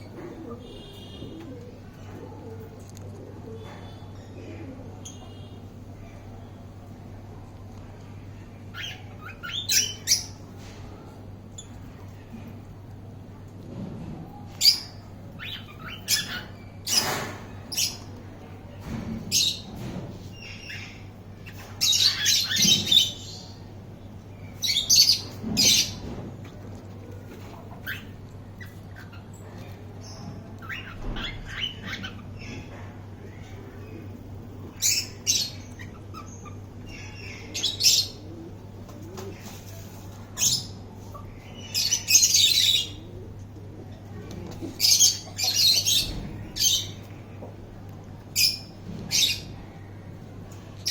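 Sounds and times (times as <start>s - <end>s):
cockatiels chirping and squawking: 8.7s - 10.4s, 14.6s - 18.0s, 20.6s - 23.4s, 27.5s - 29.4s, 30.1s - 32.8s, 34.8s - 38.2s.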